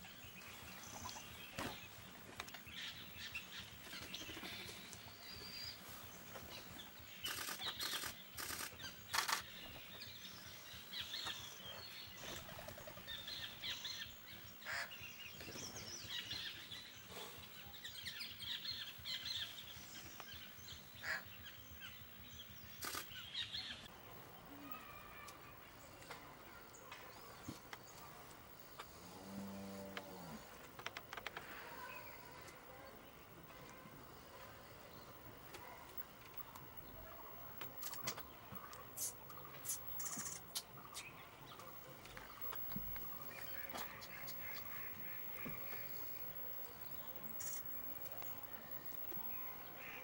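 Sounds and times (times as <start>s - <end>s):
small birds chirping: 0.0s - 50.0s
sharp clicks: 7.2s - 9.5s, 22.8s - 23.2s.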